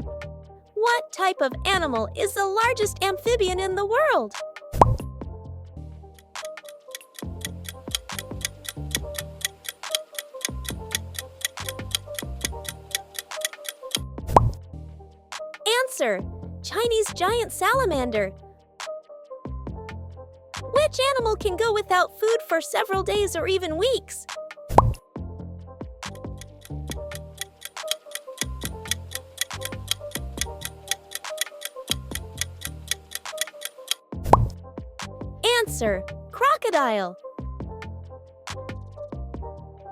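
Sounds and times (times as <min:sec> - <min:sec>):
light backing tune with bass: 0:00.0 - 0:00.7, 0:01.6 - 0:15.4, 0:16.2 - 0:18.8, 0:19.5 - 0:21.9, 0:23.0 - 0:36.5, 0:37.4 - 0:39.9
clock-like ticking: 0:06.2 - 0:14.0, 0:26.2 - 0:34.0.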